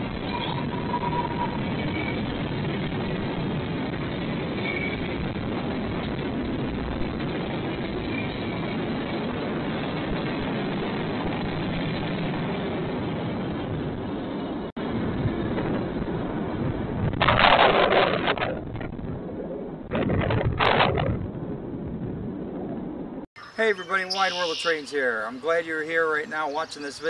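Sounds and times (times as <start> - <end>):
train cars running on track: 0.0 - 14.7.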